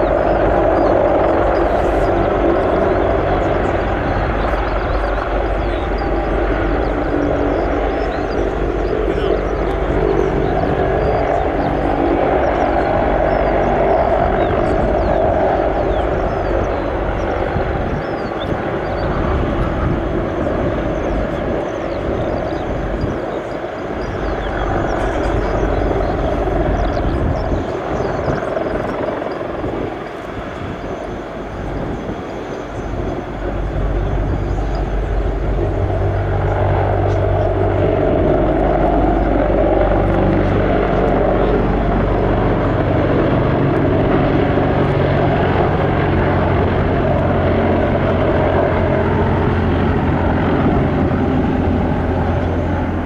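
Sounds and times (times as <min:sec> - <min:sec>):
helicopter engines and rotors: 0:00.0 - 0:53.0
steady low hum: 0:30.6 - 0:53.0.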